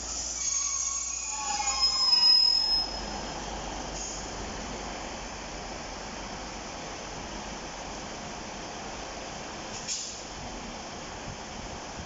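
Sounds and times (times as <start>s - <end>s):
diesel train moving slowly: 0.0s - 12.0s
high wheel squeal: 0.1s - 3.2s.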